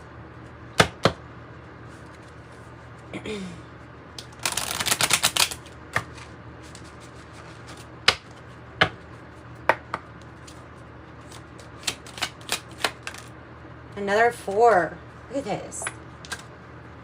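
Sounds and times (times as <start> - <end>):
cards snapping and tapping: 4.2 - 6.2, 11.7 - 13.3
cards shuffling: 4.2 - 8.4, 10.2 - 13.3.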